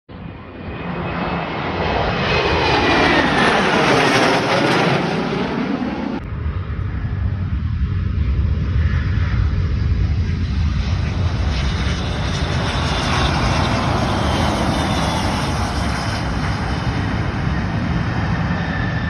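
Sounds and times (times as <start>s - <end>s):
airplane engines passing: 0.1s - 19.0s.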